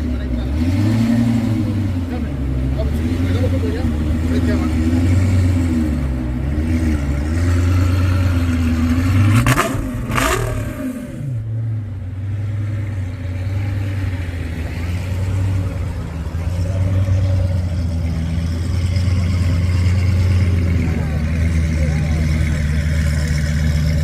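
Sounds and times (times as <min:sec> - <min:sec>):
car engine revving hard: 0:00.0 - 0:11.5
car engine idling: 0:00.0 - 0:24.0.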